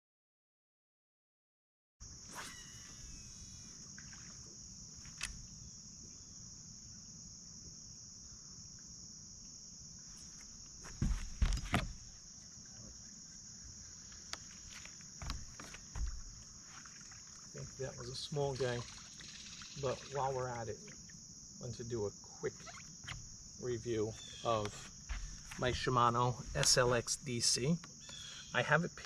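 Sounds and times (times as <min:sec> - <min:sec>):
insects trilling: 0:02.0 - 0:29.0
knocks: 0:15.2 - 0:16.4.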